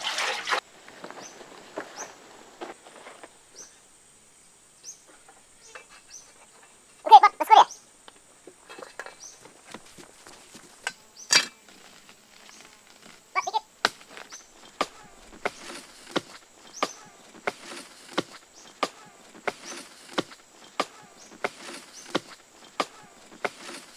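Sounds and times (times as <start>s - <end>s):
sharp knocks: 14.8s - 23.9s.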